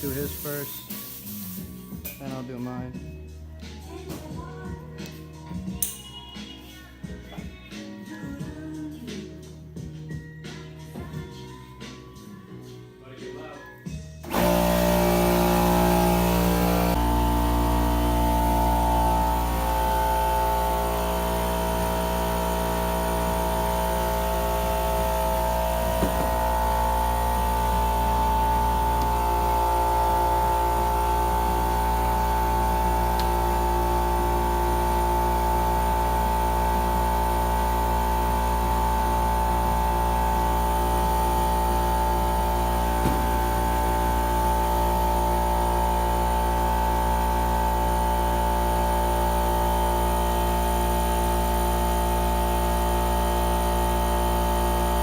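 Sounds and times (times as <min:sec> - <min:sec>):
motor whining hum: 0:14.3 - 0:55.0.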